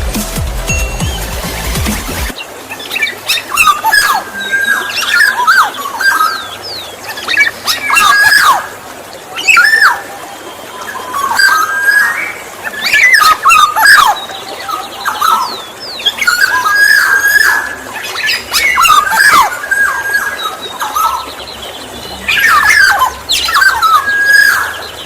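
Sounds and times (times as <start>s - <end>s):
harsh bird calls: 0.9s - 25.0s
oriole whistled calls: 2.7s - 25.0s.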